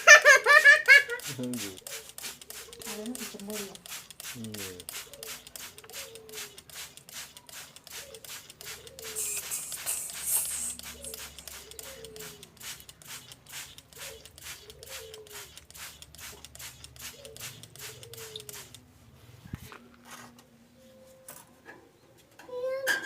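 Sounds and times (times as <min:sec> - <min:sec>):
bird calling with rapid clicks: 0:00.6 - 0:18.8.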